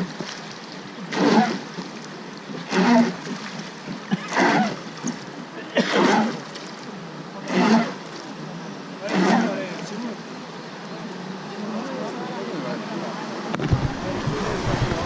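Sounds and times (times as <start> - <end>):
oar strokes in water: 0.0 - 8.4, 9.0 - 9.9, 13.6 - 15.0.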